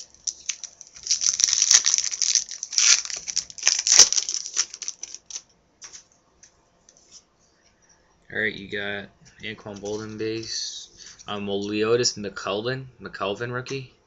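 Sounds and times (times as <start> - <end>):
card pack wrapper crinkling and tearing: 0.0 - 6.0
soft wrapper rustles: 0.0 - 6.1, 9.7 - 11.8.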